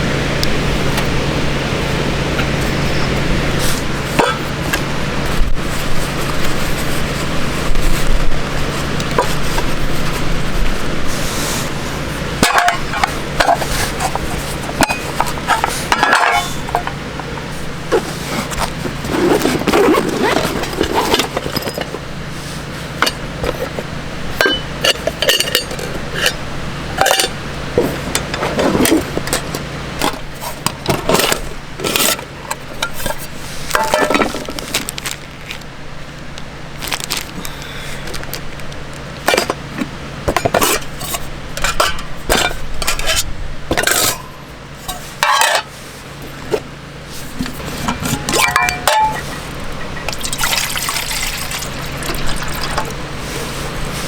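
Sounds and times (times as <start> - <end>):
steady low hum: 0.0 - 54.0
cookware and utensils clinking: 14.8 - 17.3, 24.4 - 26.4, 27.0 - 27.4, 40.4 - 45.7, 47.7 - 52.9.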